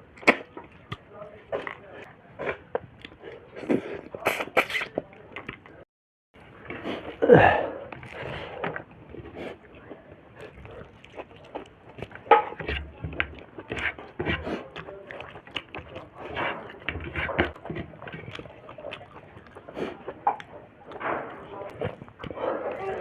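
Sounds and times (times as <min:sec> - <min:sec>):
wet mouth smacks and chewing: 0:00.1 - 0:01.8, 0:07.9 - 0:23.0.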